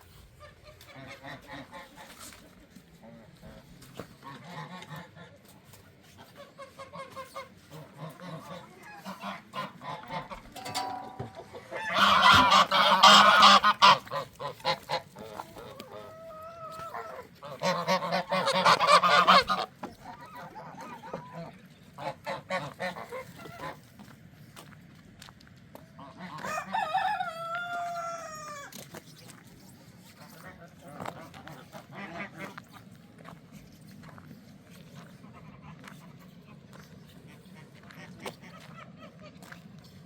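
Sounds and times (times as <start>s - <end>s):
geese honking: 0.0s - 24.1s, 26.0s - 33.3s.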